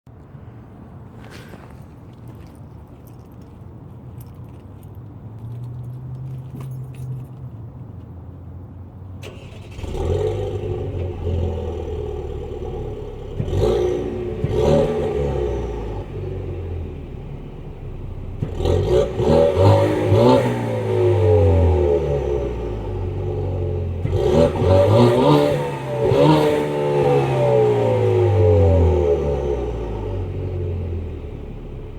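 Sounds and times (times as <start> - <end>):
car engine revving: 9.2 - 31.9.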